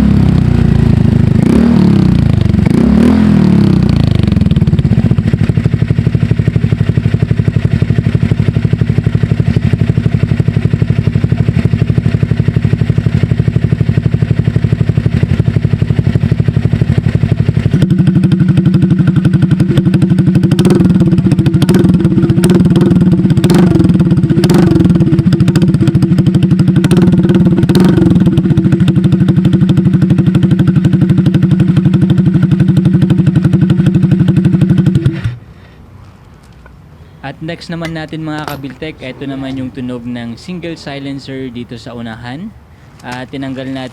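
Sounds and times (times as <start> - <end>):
scooter engine idling and revving: 0.0 - 35.6, 37.5 - 43.9.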